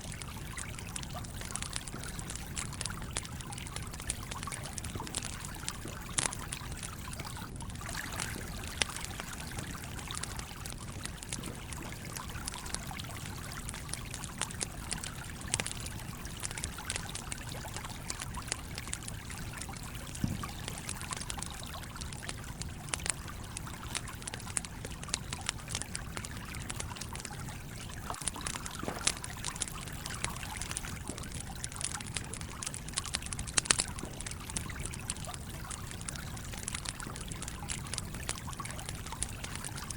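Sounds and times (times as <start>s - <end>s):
campfire crackling: 0.0s - 39.9s
stream flowing: 28.0s - 33.9s.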